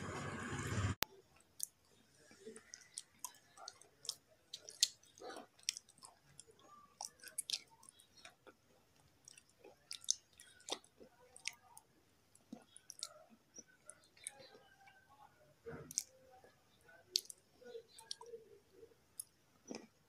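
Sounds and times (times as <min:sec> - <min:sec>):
pencil being chewed crunching: 0:01.4 - 0:11.6.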